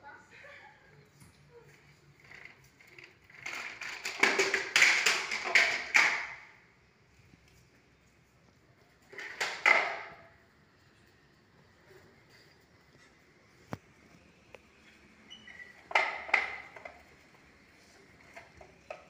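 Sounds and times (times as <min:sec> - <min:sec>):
hard objects knocking together: 0:03.3 - 0:06.4.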